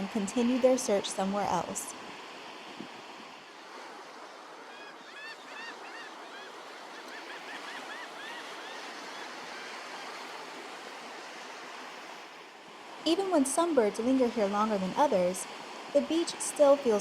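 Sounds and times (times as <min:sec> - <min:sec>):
surf washing on beach: 0:00.0 - 0:17.0
gull calls: 0:04.7 - 0:09.8.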